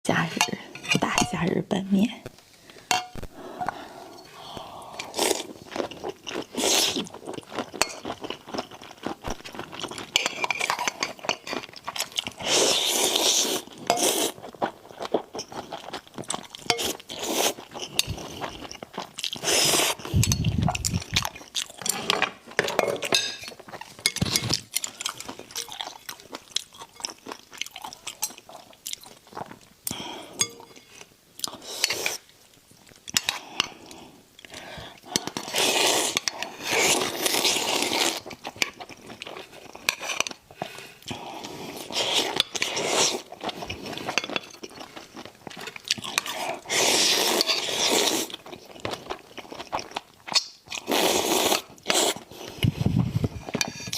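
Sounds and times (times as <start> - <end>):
utensils clinking on dishes: 2.9 - 4.4, 10.0 - 11.8, 21.8 - 26.0, 30.4 - 31.0
chewing and crunching: 5.0 - 53.9.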